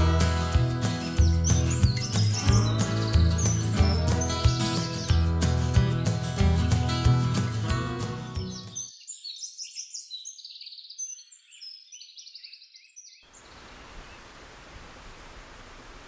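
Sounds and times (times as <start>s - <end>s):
birds chirping: 0.0s - 5.3s, 8.4s - 16.0s
steady hiss: 13.3s - 16.0s.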